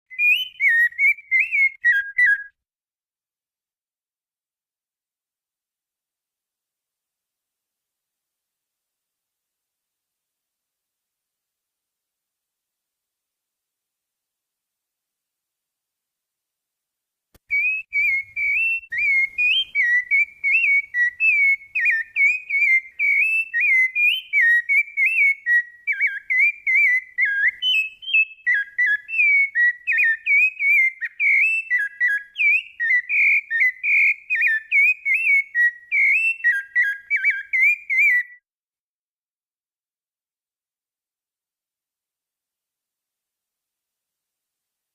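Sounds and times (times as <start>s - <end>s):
songbird singing: 0.1s - 2.6s, 17.4s - 38.4s.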